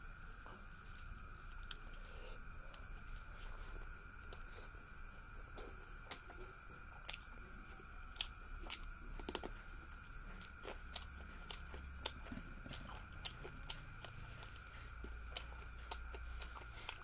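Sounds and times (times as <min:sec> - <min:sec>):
crickets chirping: 0:00.0 - 0:17.0
chewing and mouth smacks: 0:00.5 - 0:02.0, 0:05.5 - 0:17.0.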